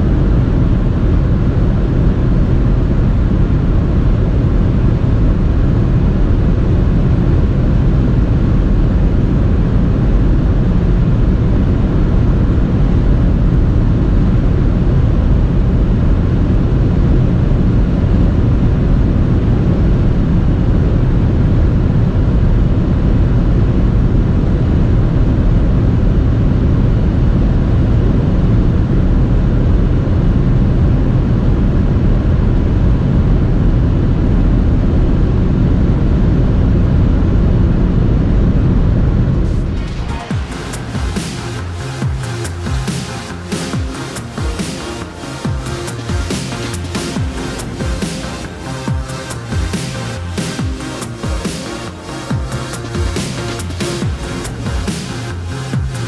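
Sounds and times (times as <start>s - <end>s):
wind and road noise: 0.0s - 56.0s
car engine at speed: 39.4s - 56.0s.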